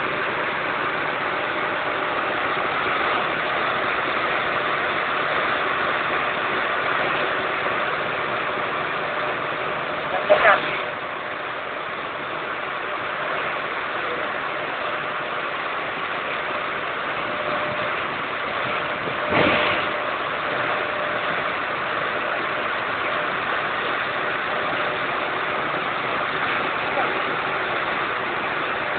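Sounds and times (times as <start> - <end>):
heavy rain falling: 0.0 - 28.9.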